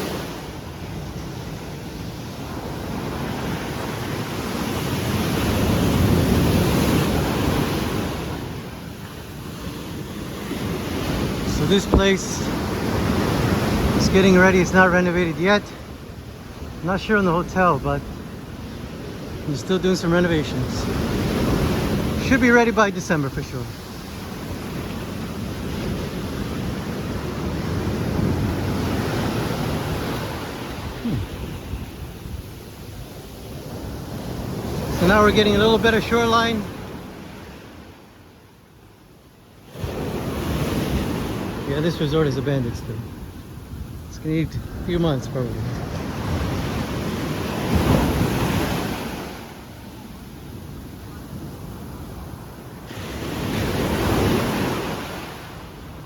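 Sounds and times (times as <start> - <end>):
sea surf washing onto beach: 0.0 - 38.6, 39.4 - 56.0
wind rumbling on microphone: 23.6 - 35.0, 42.6 - 49.7
wind buffeting microphone: 42.9 - 49.3.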